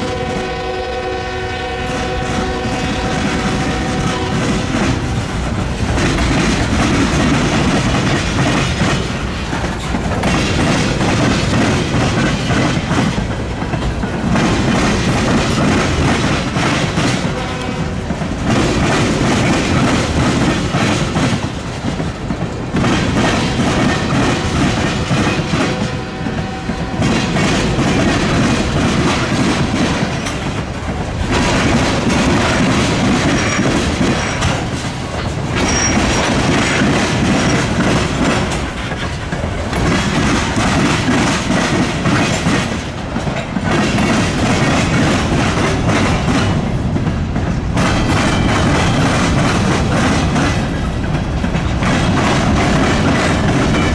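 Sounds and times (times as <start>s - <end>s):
train wheels clattering over crossing: 0.0s - 53.9s.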